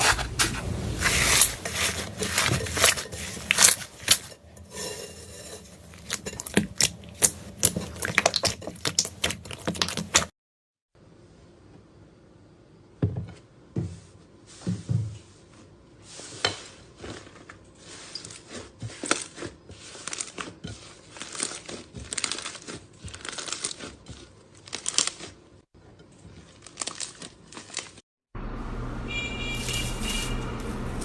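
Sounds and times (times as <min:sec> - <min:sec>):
slime squishing: 0:05.8 - 0:10.3, 0:17.0 - 0:25.5
slime crackling and popping: 0:21.1 - 0:24.0.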